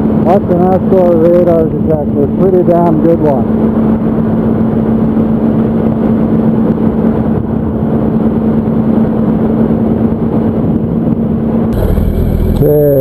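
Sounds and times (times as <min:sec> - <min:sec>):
wind and road noise: 0:00.0 - 0:13.0
motorcycle engine drone: 0:11.7 - 0:13.0.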